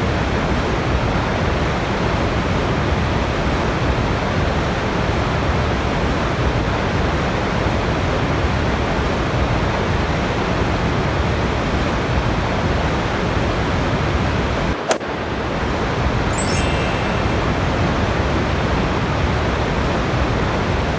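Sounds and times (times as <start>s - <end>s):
sharp click: 16.3s - 17.4s.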